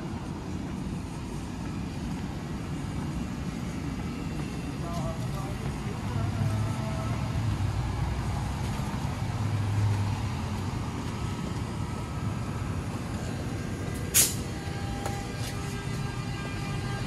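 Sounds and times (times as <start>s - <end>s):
train rumbling over overpass: 0.0s - 17.0s
sharp metal clank: 14.1s - 14.5s.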